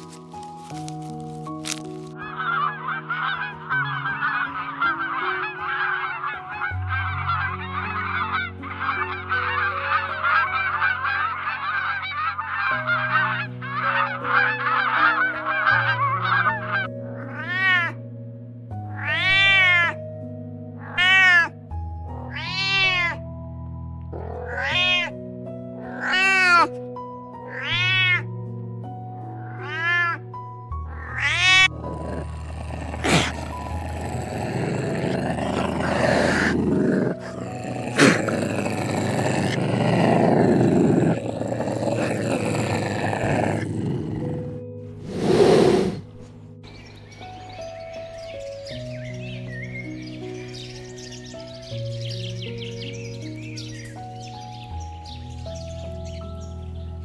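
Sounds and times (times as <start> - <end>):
slow background music: 0.0 - 57.0
waterfowl calling: 2.2 - 17.8
cat meowing: 17.2 - 18.0, 19.0 - 20.0, 20.8 - 21.6, 22.2 - 23.2, 24.2 - 25.2, 25.8 - 26.7, 27.5 - 28.3, 29.4 - 30.3, 30.9 - 43.6.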